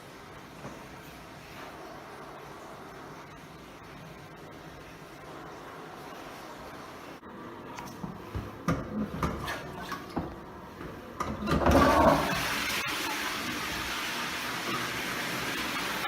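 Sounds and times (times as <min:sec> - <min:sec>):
toilet flushing: 0:08.0 - 0:16.0.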